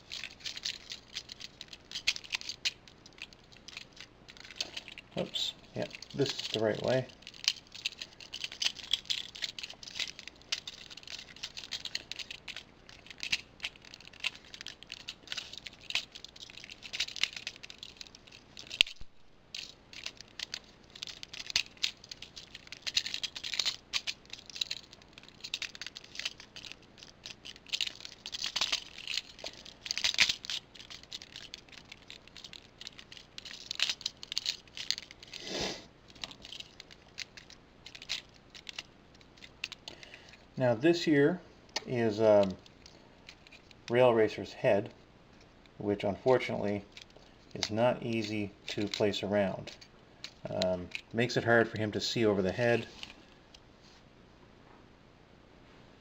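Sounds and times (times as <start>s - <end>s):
plastic toy parts clicking: 0.0s - 5.2s, 5.8s - 35.4s, 36.1s - 40.4s, 41.7s - 43.9s, 46.9s - 51.2s.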